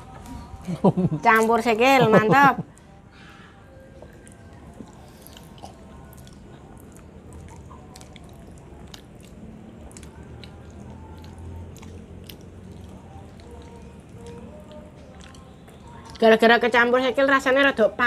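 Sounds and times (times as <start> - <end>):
low steady hum: 0.0 - 18.0
chewing with wet smacks: 3.9 - 16.6.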